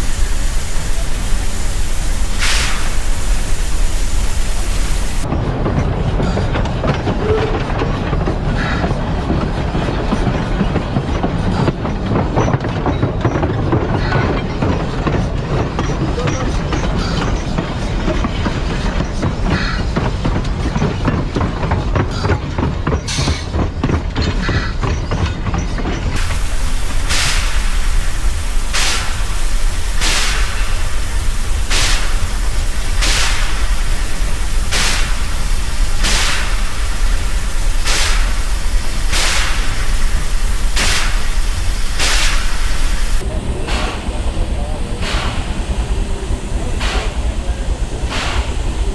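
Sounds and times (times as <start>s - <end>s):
loud steady hiss: 0.0s - 5.3s, 26.2s - 48.9s
wheels clanking over rail: 0.0s - 5.3s, 25.2s - 43.2s
steam train rumbling: 0.0s - 48.9s.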